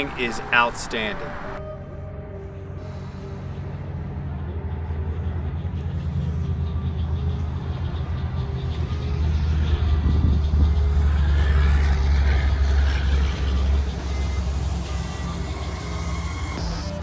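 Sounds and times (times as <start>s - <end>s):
pickup truck engine running: 0.0s - 1.6s.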